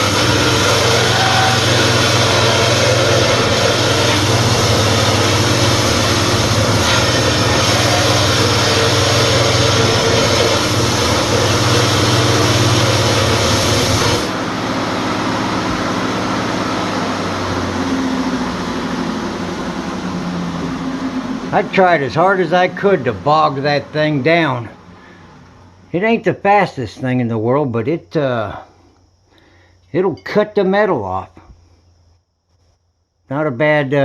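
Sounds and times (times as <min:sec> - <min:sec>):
power tool cutting steel: 0:00.0 - 0:24.7
low motor hum: 0:00.0 - 0:26.0.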